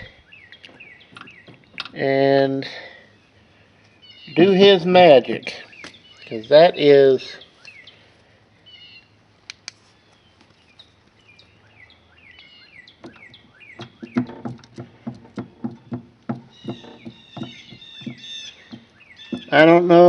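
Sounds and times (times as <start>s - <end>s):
small birds chirping: 0.0s - 20.0s
quick dull knocks: 13.0s - 19.7s.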